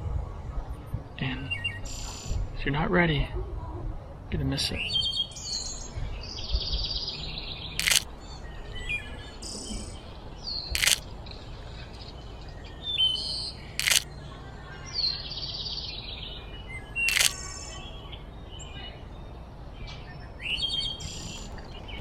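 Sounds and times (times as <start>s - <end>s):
songbirds chirping: 0.7s - 22.0s
sharp clicks: 7.8s - 8.1s, 10.7s - 11.1s, 13.8s - 14.1s, 17.0s - 17.5s.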